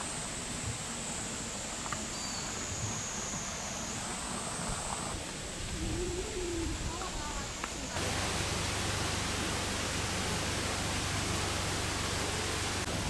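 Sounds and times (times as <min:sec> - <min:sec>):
wind on microphone: 0:04.6 - 0:13.0.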